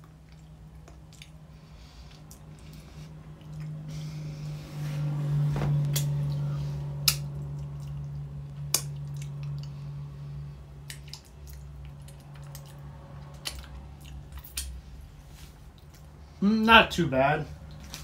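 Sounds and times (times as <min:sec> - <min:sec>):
chewing with candy popping: 0:00.0 - 0:01.4, 0:10.8 - 0:14.8
steady low hum: 0:00.0 - 0:18.0.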